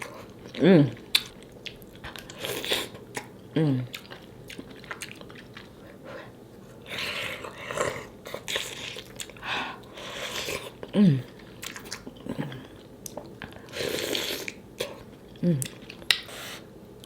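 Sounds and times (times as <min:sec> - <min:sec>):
wet eating noises: 0:00.0 - 0:16.6
person humming: 0:00.6 - 0:01.0, 0:03.5 - 0:03.9, 0:10.9 - 0:11.3, 0:15.4 - 0:15.8.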